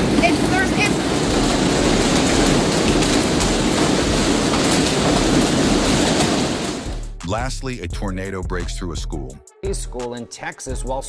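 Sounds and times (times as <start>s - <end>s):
hail pounding on a roof: 0.0s - 7.1s.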